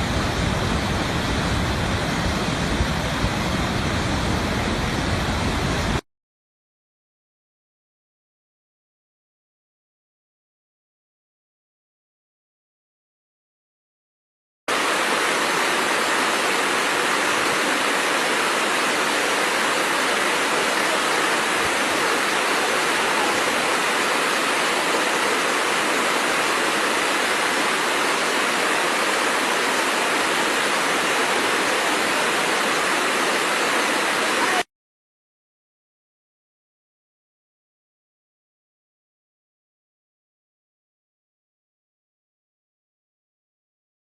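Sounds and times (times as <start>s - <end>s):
waterfall rushing: 0.0s - 6.0s, 14.7s - 34.7s.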